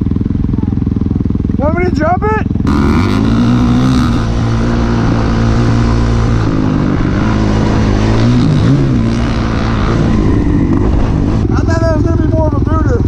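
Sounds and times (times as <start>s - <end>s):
dirt bike engine running: 0.0s - 13.0s
wind noise: 2.6s - 12.4s.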